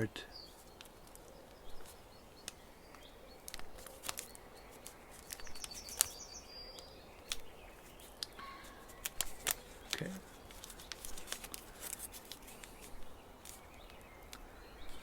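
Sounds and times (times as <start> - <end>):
faint high chirps: 0.0 - 11.1
paper being handled and creased: 3.4 - 6.3, 7.2 - 14.0.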